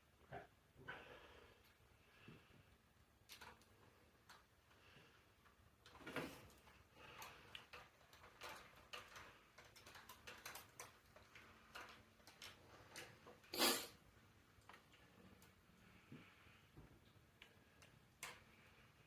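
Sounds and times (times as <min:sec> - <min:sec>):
metal bike parts clicking: 0:07.0 - 0:13.4.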